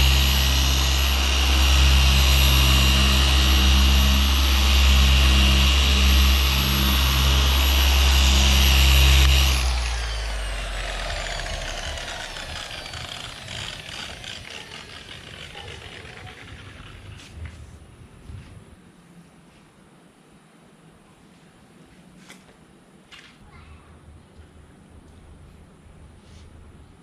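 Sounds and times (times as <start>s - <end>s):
motor humming and whining: 0.0s - 17.7s.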